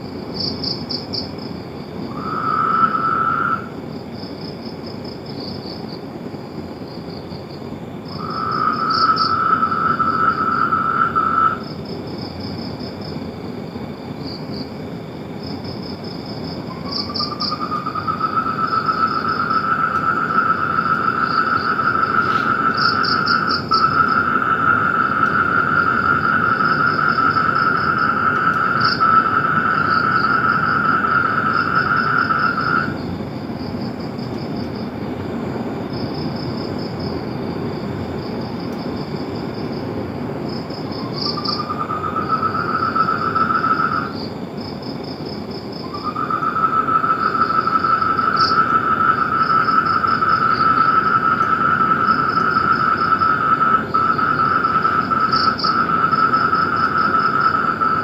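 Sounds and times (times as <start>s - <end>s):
frogs calling in pulsed trills: 0.0s - 3.8s, 8.1s - 13.1s, 15.4s - 34.8s, 40.5s - 58.0s.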